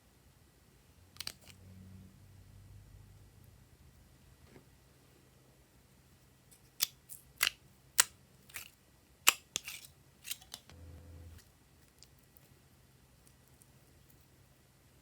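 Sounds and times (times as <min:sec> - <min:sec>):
brief low hum: 0:10.7 - 0:11.4.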